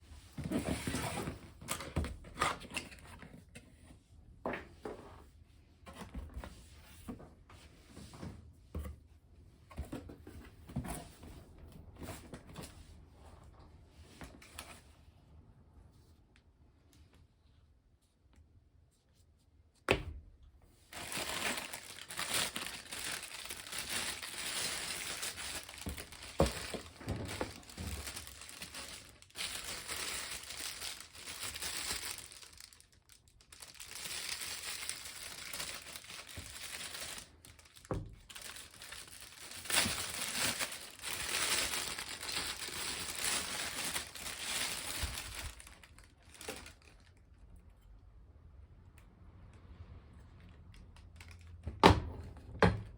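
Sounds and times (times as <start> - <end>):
packaging crinkling and tearing: 20.9 - 47.3.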